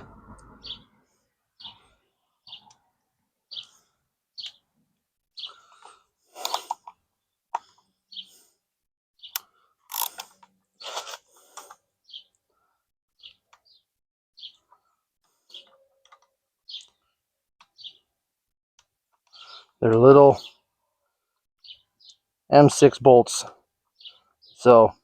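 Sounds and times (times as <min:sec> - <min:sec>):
birds chirping: 0:00.0 - 0:02.9, 0:03.5 - 0:08.5, 0:09.2 - 0:11.0, 0:12.0 - 0:18.1, 0:19.2 - 0:20.7, 0:21.6 - 0:23.2, 0:23.8 - 0:25.0
socket ratchet clicking: 0:09.4 - 0:10.3.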